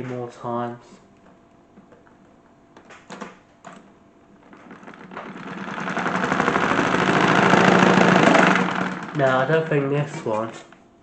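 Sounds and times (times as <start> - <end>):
toy washing machine rattling: 4.4 - 9.7.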